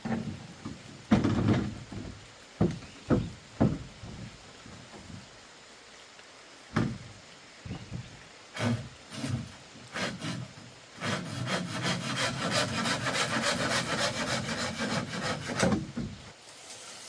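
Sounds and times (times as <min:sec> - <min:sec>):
knocks on wood: 0:00.0 - 0:04.4, 0:06.7 - 0:07.1.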